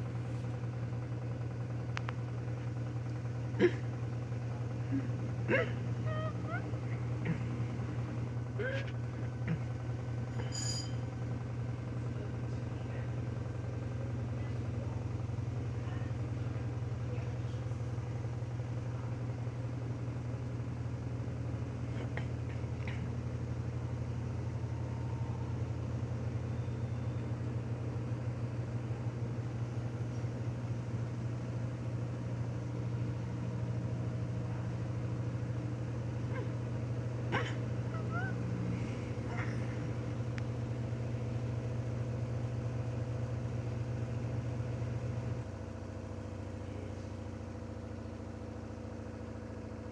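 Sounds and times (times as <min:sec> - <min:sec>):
washing machine spinning: 0:00.0 - 0:21.9, 0:23.1 - 0:49.9
faint clicks: 0:01.9 - 0:02.2.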